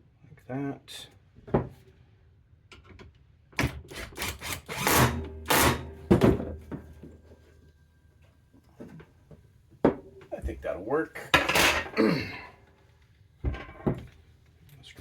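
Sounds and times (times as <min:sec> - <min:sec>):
tools clattering: 0:11.4 - 0:12.0.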